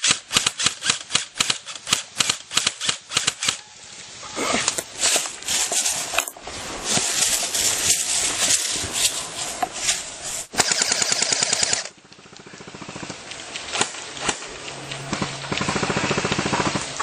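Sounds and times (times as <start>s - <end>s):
airsoft gun full-auto burst: 10.5s - 14.4s, 15.5s - 17.0s.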